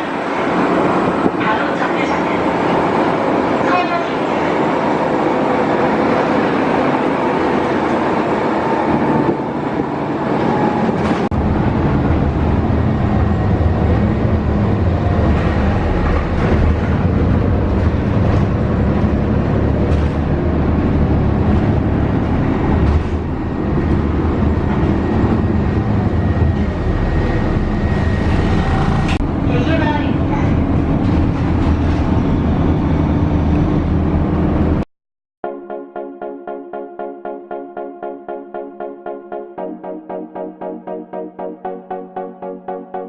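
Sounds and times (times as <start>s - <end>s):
vehicle rumble from inside: 10.8s - 34.8s
deep low rumble: 11.0s - 29.5s.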